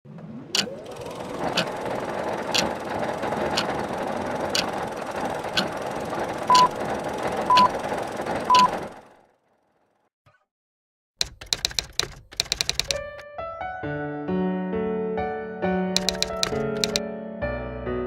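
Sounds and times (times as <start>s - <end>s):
projector whirr: 0.2s - 9.1s
clicks: 0.5s - 1.8s, 2.4s - 2.8s, 3.4s - 3.9s, 4.5s - 4.8s, 5.5s - 5.8s, 6.5s - 6.8s, 7.5s - 7.8s, 8.5s - 8.7s, 11.2s - 13.2s, 16.0s - 17.0s
short high beeps: 6.5s - 6.8s, 8.5s - 8.7s.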